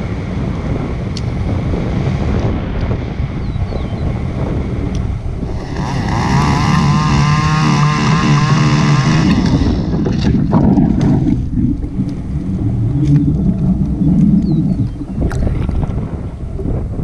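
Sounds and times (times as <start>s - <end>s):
wind buffeting microphone: 0.0s - 17.0s
chainsaw running: 5.4s - 10.0s.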